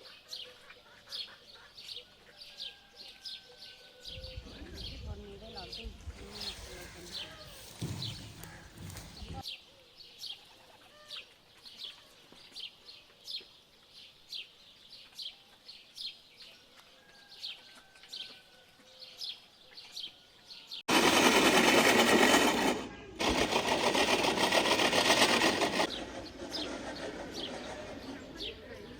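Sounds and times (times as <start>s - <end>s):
loud steady machine noise: 20.9s - 28.6s.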